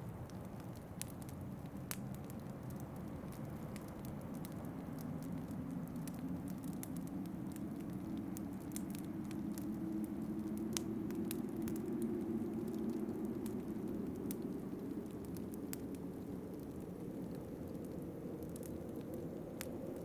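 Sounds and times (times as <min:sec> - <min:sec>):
low rush of wind: 0:00.0 - 0:20.0
wood fire crackling and popping: 0:00.0 - 0:20.0.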